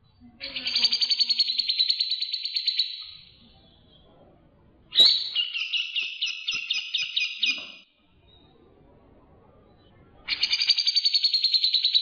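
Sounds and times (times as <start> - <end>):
songbird trilling: 0.4 - 3.2, 4.9 - 7.8
rapid high bird chirps: 0.4 - 3.3, 4.9 - 7.8, 10.3 - 12.0.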